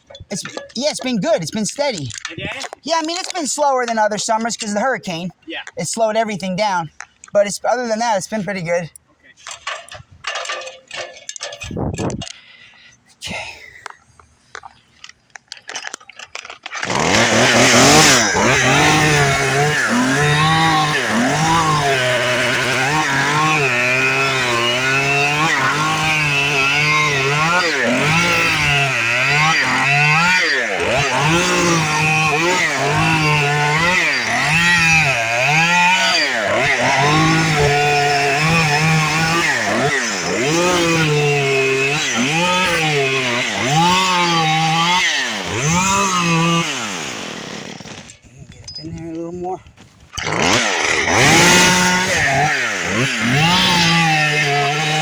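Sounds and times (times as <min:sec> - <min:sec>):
chainsaw revving: 0:16.7 - 0:48.2, 0:50.1 - 0:55.0.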